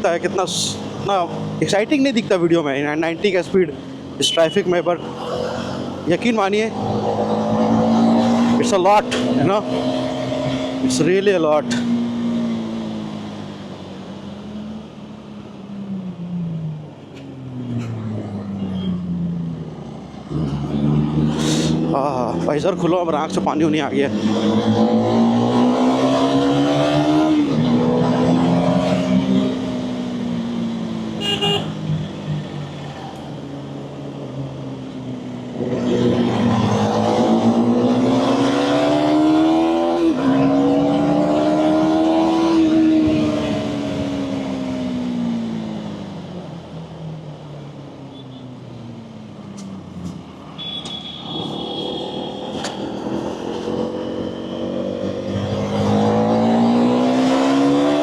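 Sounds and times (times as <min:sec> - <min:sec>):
motorcycle engine accelerating: 0:06.6 - 0:13.4, 0:17.8 - 0:32.3, 0:35.5 - 0:46.1, 0:51.4 - 0:58.0
vehicle horn: 0:31.2 - 0:31.8, 0:50.6 - 0:52.7.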